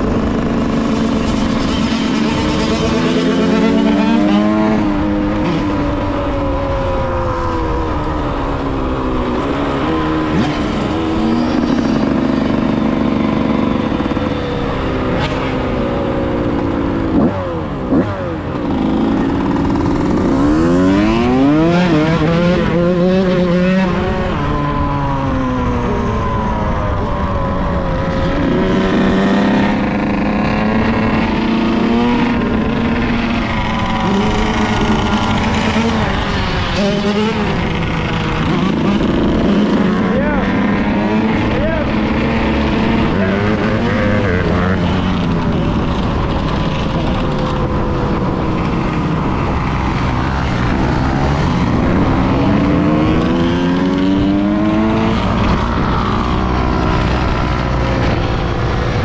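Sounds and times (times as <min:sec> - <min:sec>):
two-stroke motorcycle engine: 0:00.0 - 0:59.0.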